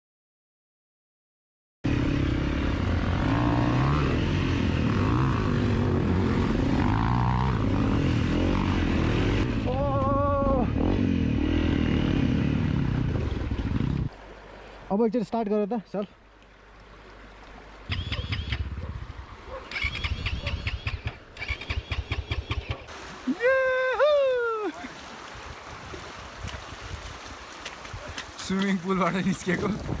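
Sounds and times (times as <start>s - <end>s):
dirt bike engines running: 1.9s - 14.1s, 17.9s - 24.7s.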